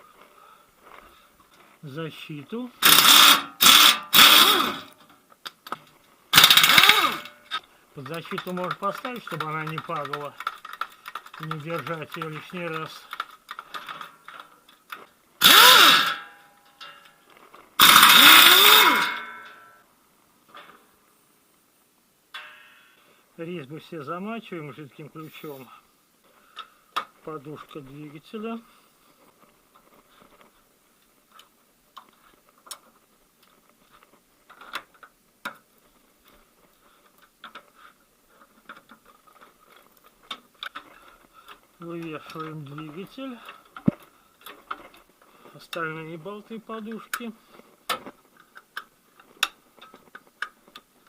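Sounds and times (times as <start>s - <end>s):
power tool motor whirring: 2.8s - 4.9s, 6.4s - 7.3s, 15.4s - 16.2s, 17.8s - 19.2s
hand tools clicking on metal: 2.8s - 17.2s, 17.8s - 19.6s.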